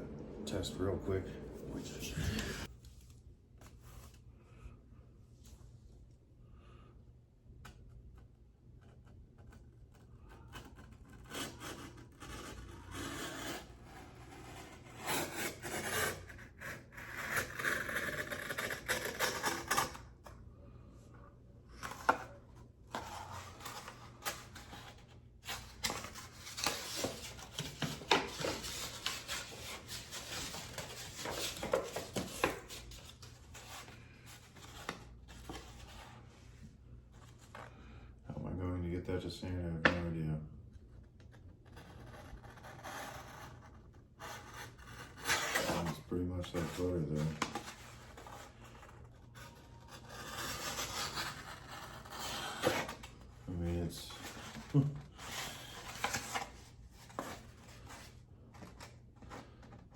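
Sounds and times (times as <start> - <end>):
paper rustling: 22.9 - 36.2, 54.1 - 59.9.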